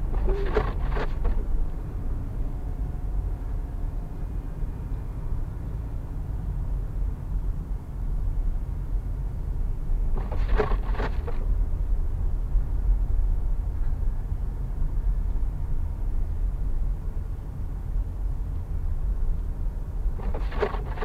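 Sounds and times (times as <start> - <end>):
car driving on highway: 0.0 - 21.0.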